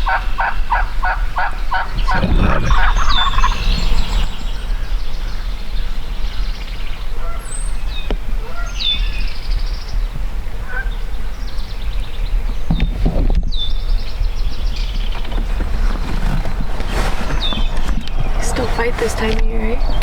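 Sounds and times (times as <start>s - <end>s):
songbirds calling: 0.0s - 20.0s
steady low rumble: 1.6s - 6.2s.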